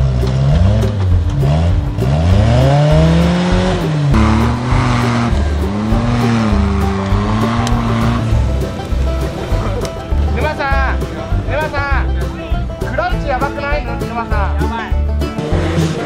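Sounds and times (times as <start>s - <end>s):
small engine revving: 0.0s - 9.9s, 15.3s - 16.0s.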